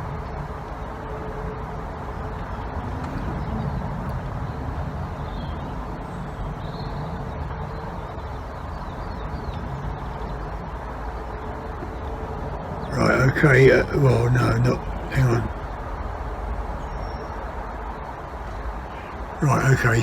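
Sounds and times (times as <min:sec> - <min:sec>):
outdoor background rumble: 0:00.0 - 0:20.0
faint bird chirps: 0:05.2 - 0:10.5.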